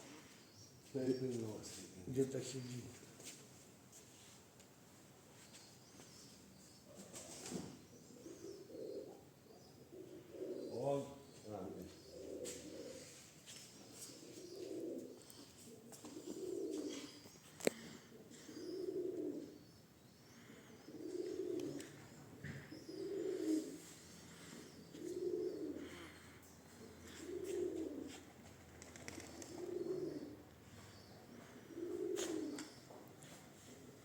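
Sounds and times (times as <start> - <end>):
pigeon cooing: 6.9 - 34.0.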